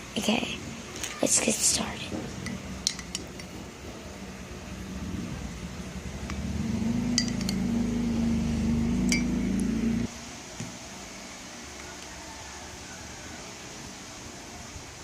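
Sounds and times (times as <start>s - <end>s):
mechanical hum: 0.0s - 15.0s
glass or utensils clinking: 7.1s - 7.7s, 9.1s - 9.5s.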